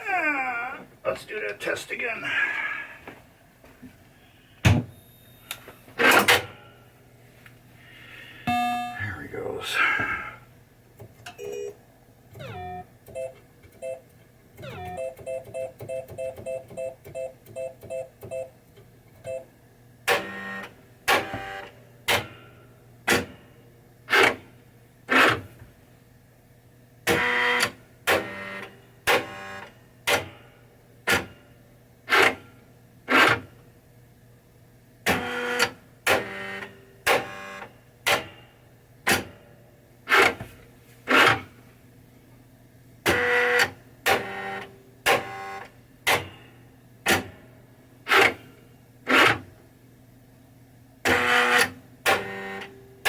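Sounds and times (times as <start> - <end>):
pinball mechanism sharp clicks: 6.0 - 6.6, 20.0 - 23.4, 24.1 - 24.4, 27.0 - 30.4, 31.0 - 31.4, 32.1 - 32.5, 33.1 - 33.5, 35.0 - 39.5, 40.1 - 40.4, 41.1 - 41.5, 43.0 - 47.4, 48.0 - 48.5, 49.1 - 49.5, 51.0 - 52.7.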